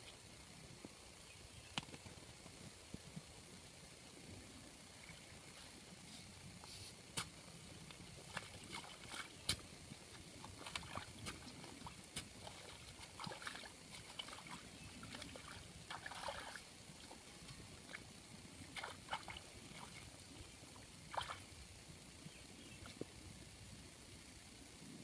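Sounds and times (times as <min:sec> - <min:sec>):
water sloshing and splashing: 0:08.2 - 0:21.6.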